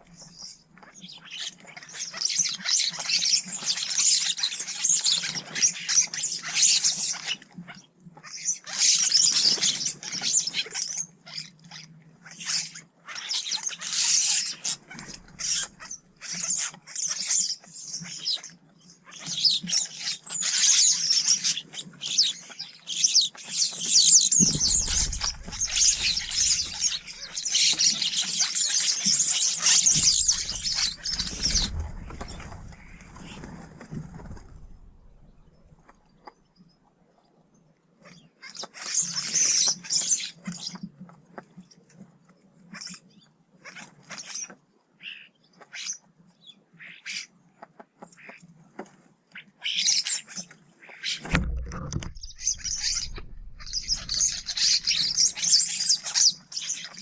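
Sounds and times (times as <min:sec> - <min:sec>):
small birds chirping: 0:00.0 - 0:48.7, 0:49.3 - 0:57.0
low rumble: 0:24.4 - 0:27.3, 0:30.1 - 0:33.4, 0:34.1 - 0:35.8, 0:51.4 - 0:55.0.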